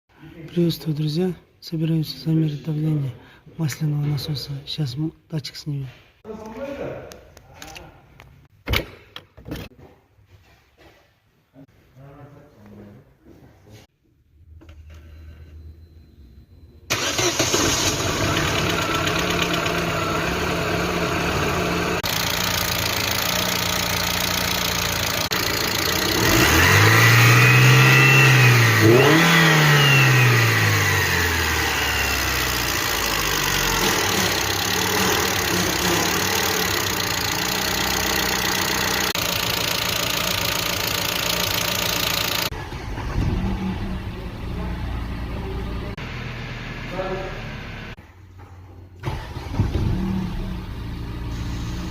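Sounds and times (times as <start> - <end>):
car engine starting and idling: 16.8 - 48.0, 49.0 - 51.9
engine revving: 16.9 - 48.0.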